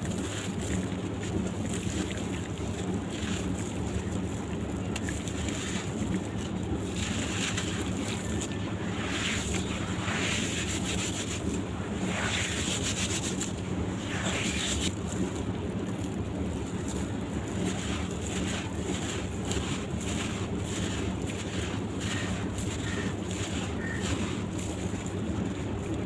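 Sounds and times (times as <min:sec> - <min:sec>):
rushing hiss of water: 0:06.9 - 0:14.9.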